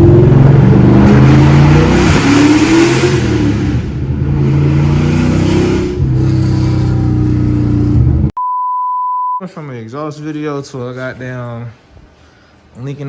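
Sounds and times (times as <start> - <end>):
loud car engine pulling hard: 0.0 - 8.3.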